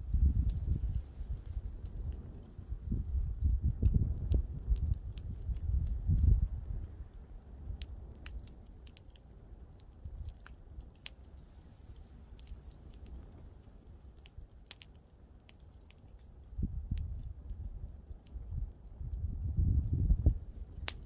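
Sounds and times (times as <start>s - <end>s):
campfire pops and snaps: 0.0s - 21.0s.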